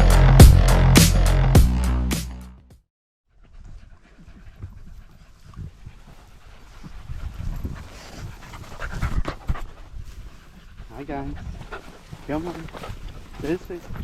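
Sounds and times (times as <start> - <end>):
dogs panting: 3.4 - 14.0.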